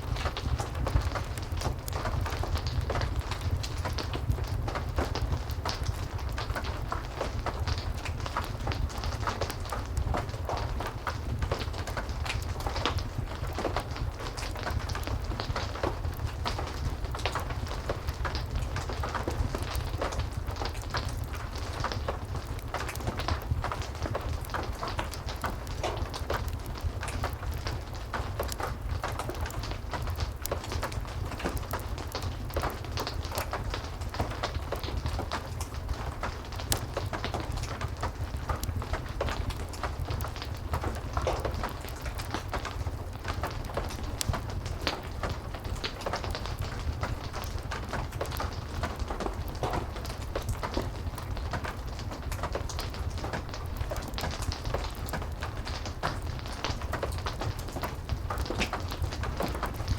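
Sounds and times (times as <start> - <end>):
heavy rain: 0.0 - 59.9
wood fire crackling: 0.0 - 59.9.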